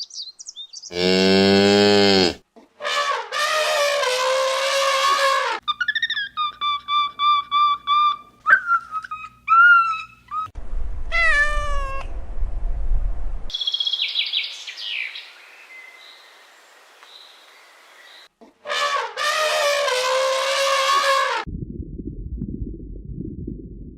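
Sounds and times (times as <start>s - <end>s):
high bird chirps: 0.0s - 1.0s, 13.5s - 16.2s
cat meowing: 11.1s - 12.1s.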